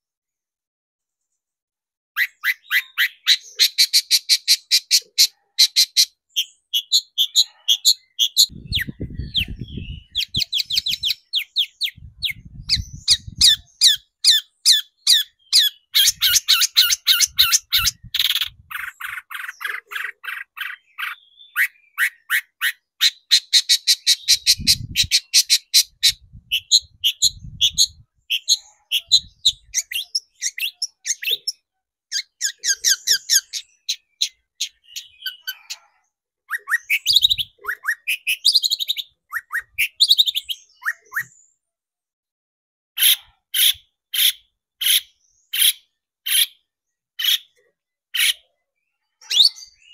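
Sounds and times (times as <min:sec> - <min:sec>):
shrike chattering song: 0:02.2 - 0:35.8.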